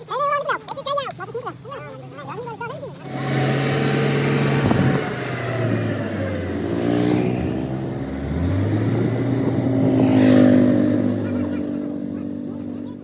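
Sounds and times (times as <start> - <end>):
vehicle engine revving: 2.8 - 13.0.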